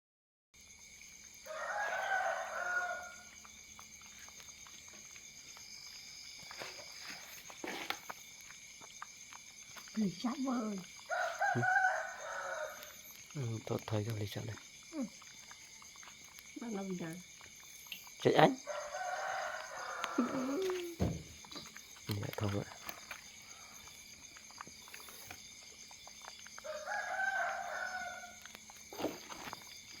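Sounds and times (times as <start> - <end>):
rooster crowing: 1.4 - 3.3, 11.1 - 12.9, 18.6 - 21.2, 26.6 - 28.4.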